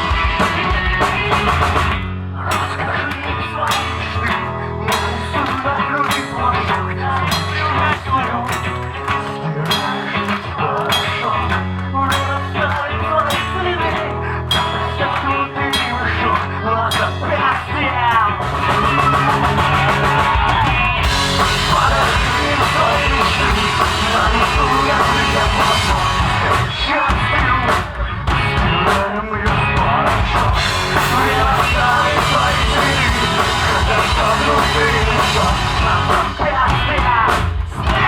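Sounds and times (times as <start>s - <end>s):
drum kit: 0.0s - 2.7s, 18.2s - 38.0s
rock band playing live: 0.0s - 38.0s.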